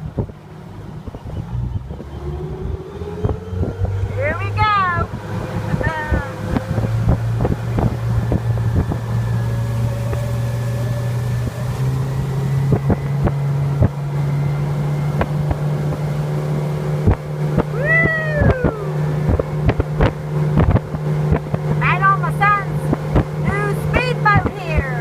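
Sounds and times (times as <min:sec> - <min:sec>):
motorboat engine running: 0:00.0 - 0:25.0
hull knocking on waves: 0:05.7 - 0:09.3
rising and falling cry: 0:17.6 - 0:19.3.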